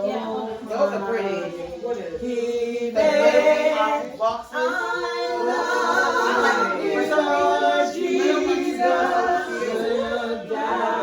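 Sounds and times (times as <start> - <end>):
voices singing unaccompanied: 0.0 - 11.0.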